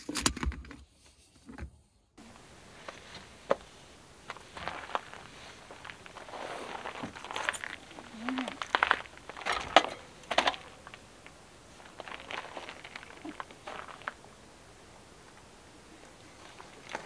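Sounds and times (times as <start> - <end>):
rustling: 2.2 - 17.0.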